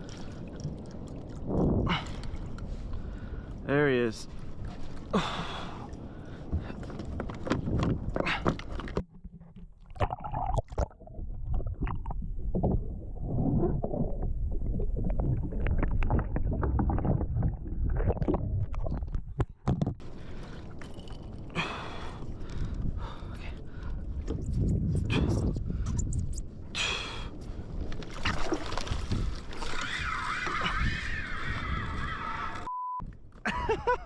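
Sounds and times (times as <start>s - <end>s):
water lapping against kayak hull: 0.0s - 3.6s, 4.3s - 24.4s, 27.5s - 32.7s
wind on microphone: 0.0s - 3.6s, 4.4s - 8.4s, 20.2s - 33.2s.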